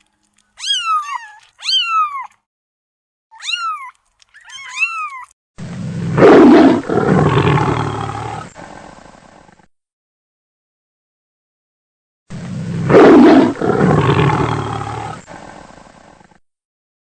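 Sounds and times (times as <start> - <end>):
kittens meowing: 0.6 - 2.4, 3.3 - 5.3
lioness growling snarl: 5.6 - 9.7, 12.3 - 16.4.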